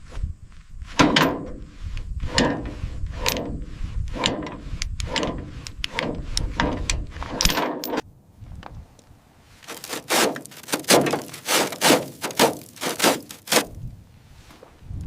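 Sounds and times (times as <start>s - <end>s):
steel chains clanking: 6.6s - 8.0s.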